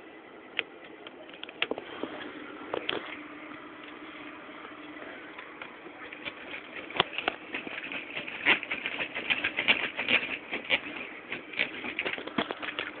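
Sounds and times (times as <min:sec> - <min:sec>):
plastic engine model clattering: 0:06.1 - 0:13.0.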